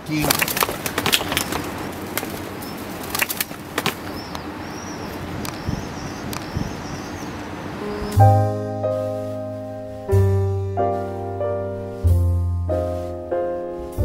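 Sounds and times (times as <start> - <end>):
small birds chirping: 0.0 - 8.6
pigeon wings flapping: 0.1 - 4.2
piano music: 7.6 - 14.0.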